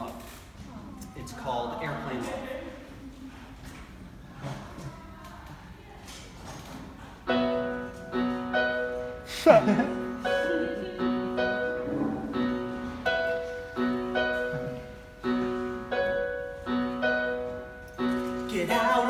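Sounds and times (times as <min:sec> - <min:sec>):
piano chords: 0:07.2 - 0:19.0.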